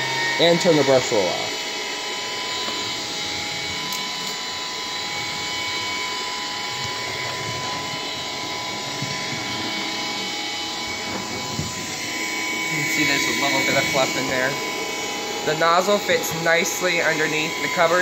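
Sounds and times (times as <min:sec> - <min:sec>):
stick vacuum running: 0:00.0 - 0:18.0.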